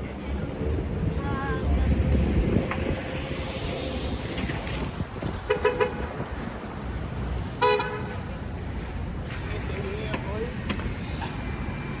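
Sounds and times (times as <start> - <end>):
street traffic: 0.0 - 12.0
vehicle horn tooting: 5.5 - 6.1, 7.6 - 8.3.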